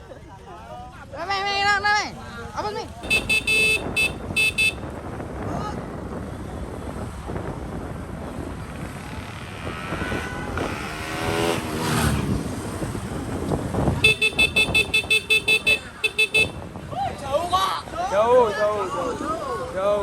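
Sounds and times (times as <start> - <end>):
outdoor noise: 0.0 - 20.0
motorcycle engine revving: 2.9 - 5.4, 6.1 - 16.9
horn short beeps: 3.0 - 4.9, 14.0 - 16.7.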